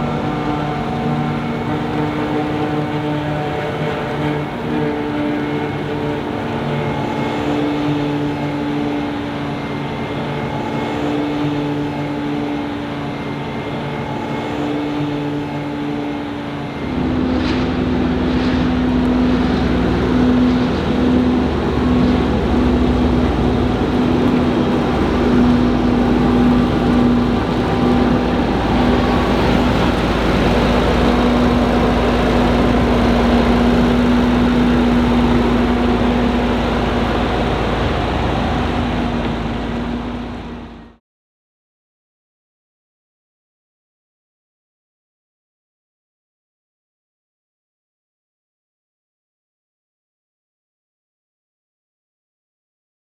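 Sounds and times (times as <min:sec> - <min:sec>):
deep loud engine: 0:00.0 - 0:41.0
diesel farm machinery running: 0:00.0 - 0:41.0.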